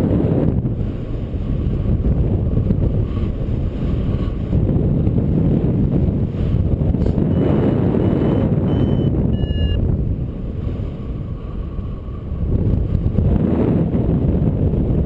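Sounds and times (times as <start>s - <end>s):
wind buffeting microphone: 0.0s - 15.0s
high electronic beeps: 8.2s - 9.8s.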